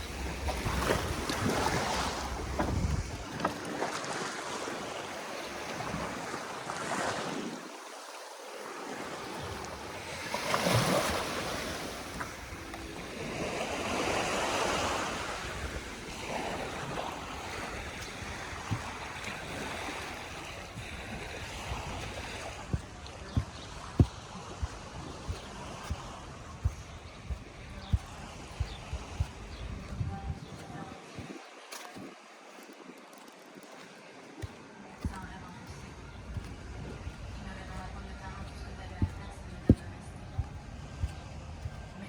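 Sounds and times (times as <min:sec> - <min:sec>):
wind on microphone: 0:00.0 - 0:03.5, 0:12.0 - 0:32.2
sea waves washing on beach: 0:00.0 - 0:42.0.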